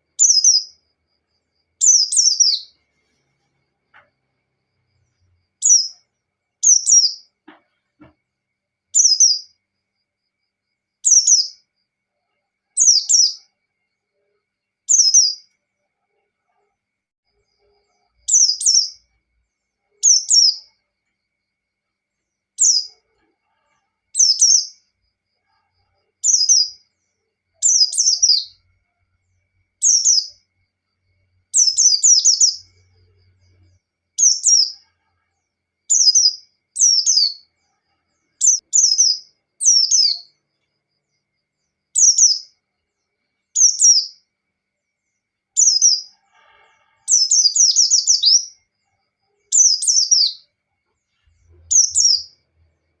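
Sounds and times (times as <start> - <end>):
bird twittering song: 0.0 - 0.9, 1.7 - 2.8, 4.9 - 8.1, 8.9 - 9.6, 11.0 - 11.7, 12.7 - 13.5, 14.8 - 15.6, 17.4 - 20.8, 22.6 - 23.1, 24.1 - 24.9, 26.2 - 28.7, 29.8 - 30.4, 31.5 - 34.8, 35.9 - 37.6, 38.2 - 40.4, 41.1 - 42.6, 43.5 - 44.3, 45.0 - 46.1, 47.1 - 48.7, 49.4 - 52.5.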